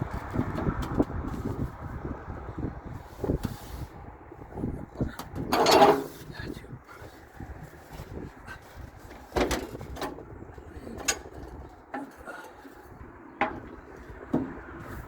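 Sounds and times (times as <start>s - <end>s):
steel pieces knocking and clunking: 5.2s - 6.2s, 9.1s - 10.3s, 10.9s - 14.6s.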